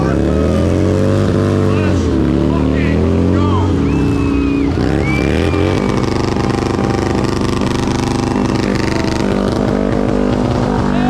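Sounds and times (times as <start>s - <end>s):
motorcycle engines running: 0.0s - 11.0s.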